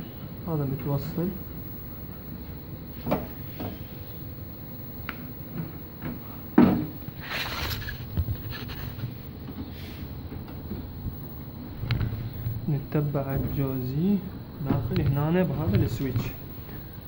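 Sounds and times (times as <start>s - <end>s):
scraping rustle: 7.2s - 12.7s.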